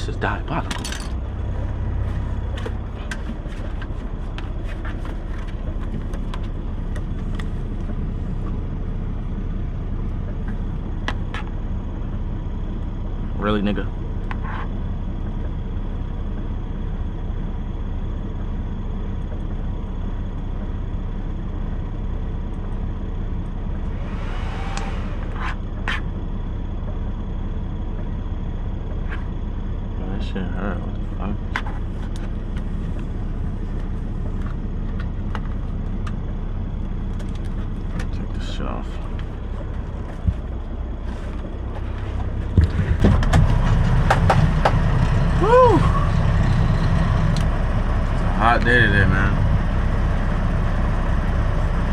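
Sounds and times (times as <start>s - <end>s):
diesel engine idling: 0.0s - 51.9s
sharp knocks and clicks: 42.5s - 45.1s.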